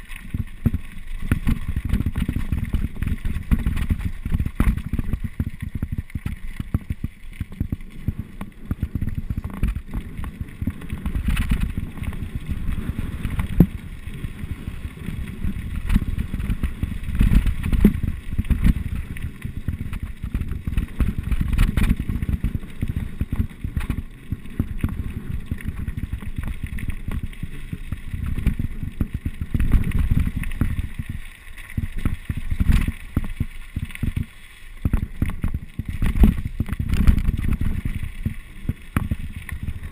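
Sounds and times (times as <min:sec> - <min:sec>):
bike rattling and knocking: 0:00.0 - 0:31.2
wind buffeting microphone: 0:00.0 - 0:31.2, 0:34.0 - 0:39.9.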